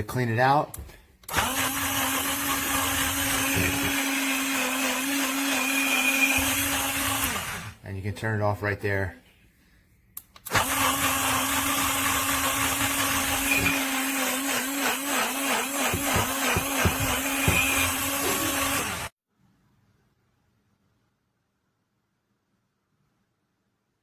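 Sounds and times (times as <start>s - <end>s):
mini blender running with water: 1.3s - 7.8s, 10.5s - 19.1s.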